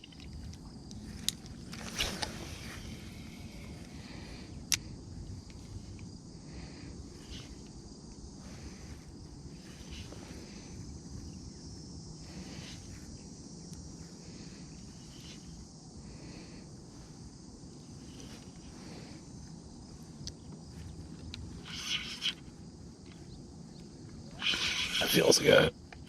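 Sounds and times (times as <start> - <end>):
faint high chirps or rustles: 19.9 - 25.3.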